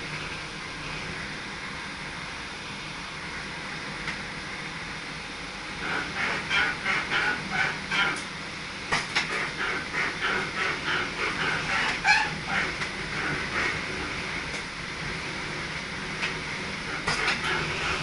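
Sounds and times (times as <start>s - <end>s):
electric train rumble and hiss: 0.0s - 18.0s
sharp squeaky pulses: 11.6s - 12.4s.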